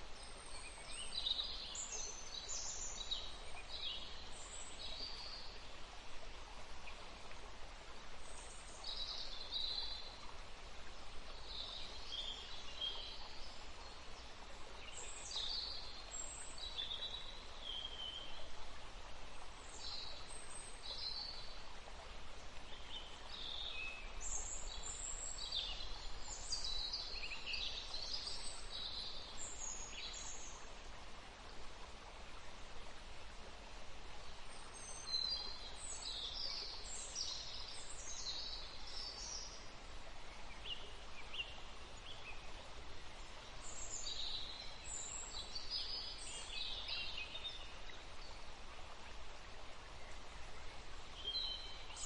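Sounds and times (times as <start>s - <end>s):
forest birds singing: 0.0s - 5.8s, 10.9s - 18.5s, 19.6s - 21.6s, 22.6s - 30.7s, 34.3s - 48.6s, 49.8s - 52.0s
stream rushing: 0.0s - 52.0s.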